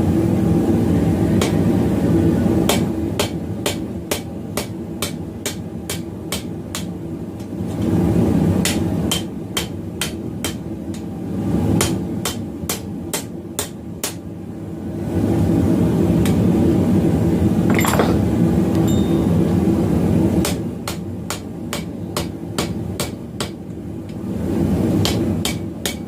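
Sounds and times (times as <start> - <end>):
hammer striking steel on anvil: 17.7 - 18.2.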